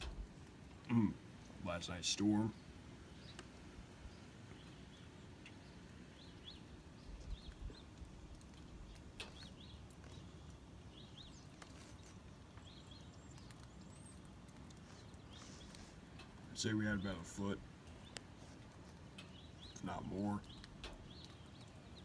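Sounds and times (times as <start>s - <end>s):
small bird chirping: 2.2s - 22.0s.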